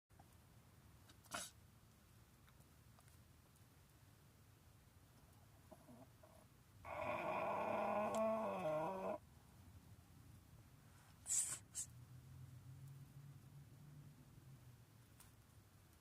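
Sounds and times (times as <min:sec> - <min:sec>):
dog snoring: 0:05.7 - 0:09.2
short hissy sounds: 0:11.1 - 0:12.0.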